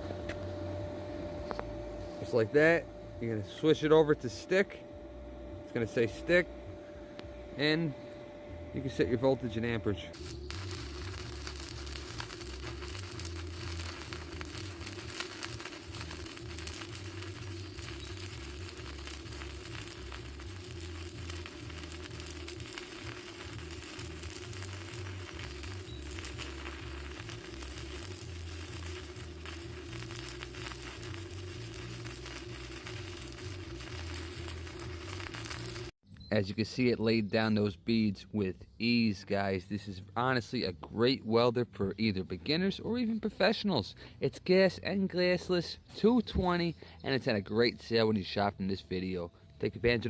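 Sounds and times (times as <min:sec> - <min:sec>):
low hum: 0:00.0 - 0:36.3
welding arc crackling: 0:08.8 - 0:36.0.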